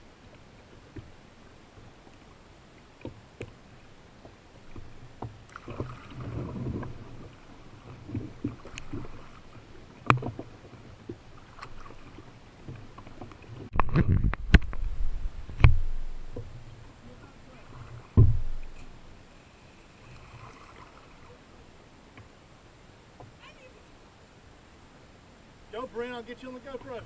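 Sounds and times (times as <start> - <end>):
water swishing from paddle strokes: 0.0 - 24.3, 25.0 - 27.0
knocks on canoe hull: 18.0 - 18.7.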